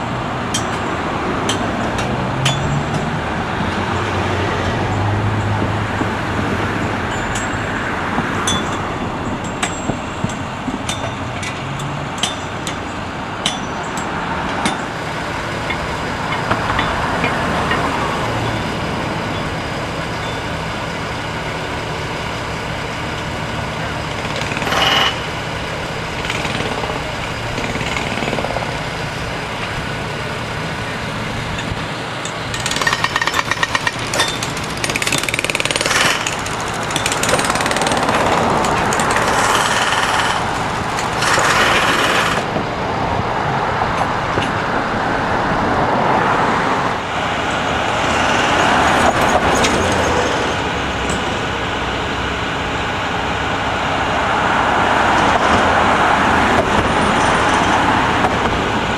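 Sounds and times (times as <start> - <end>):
heavy machinery running: 0.0 - 58.9
rapid hammering: 32.5 - 42.5.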